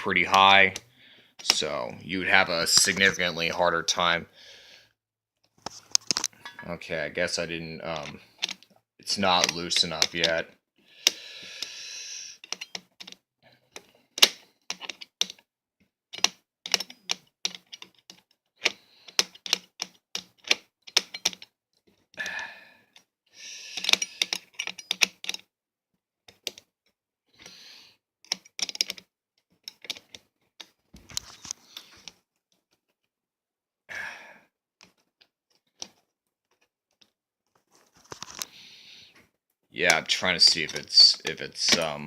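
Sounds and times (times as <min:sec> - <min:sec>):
metal scraping on screw: 0:12.4 - 0:12.8, 0:23.7 - 0:25.4
metal clicking on screw head: 0:23.8 - 0:25.4.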